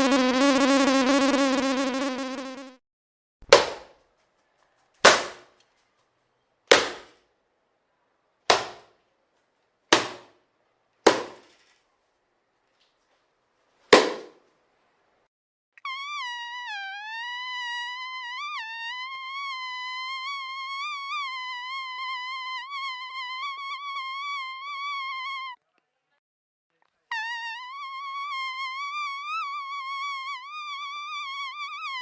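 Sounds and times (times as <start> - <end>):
mosquito whine: 0.0 - 2.8, 15.8 - 25.6, 27.1 - 32.0.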